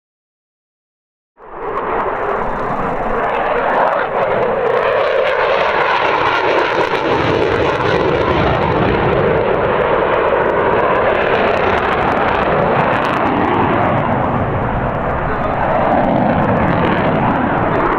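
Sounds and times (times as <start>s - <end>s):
jet engines roaring: 1.4s - 17.9s
deep rumble: 1.6s - 5.9s.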